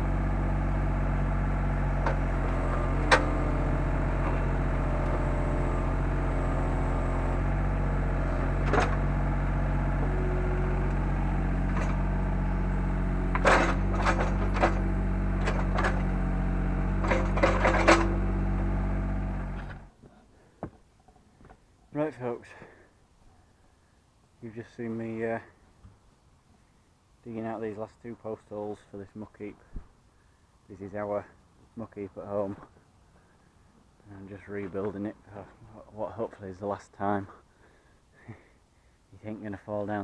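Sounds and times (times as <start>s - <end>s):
excavator diesel engine running: 0.0s - 19.9s
sharp knocks and clatters: 13.3s - 16.1s, 17.0s - 18.2s.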